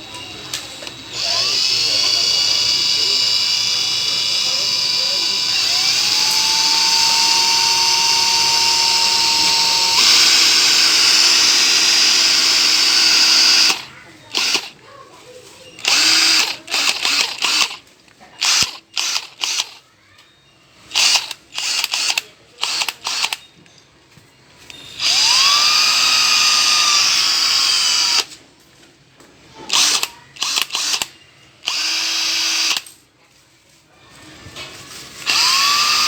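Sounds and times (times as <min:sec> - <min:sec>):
cordless hammer drill whining: 0:00.0 - 0:14.8, 0:15.8 - 0:17.8, 0:18.4 - 0:19.8, 0:20.9 - 0:23.4, 0:24.7 - 0:28.3, 0:29.7 - 0:32.8, 0:35.2 - 0:36.0.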